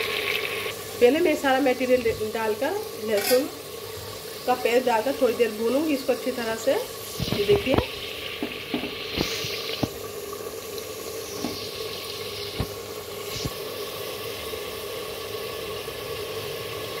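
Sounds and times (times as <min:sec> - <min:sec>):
gravy simmering and sizzling: 0:00.0 - 0:17.0
metal spatula clinking on pot: 0:03.1 - 0:03.5.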